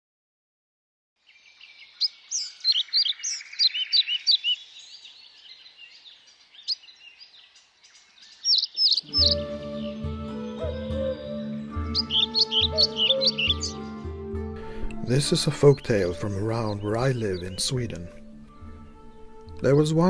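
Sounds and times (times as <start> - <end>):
birds chirping: 1.2 - 20.0
music with low held notes: 9.0 - 20.0.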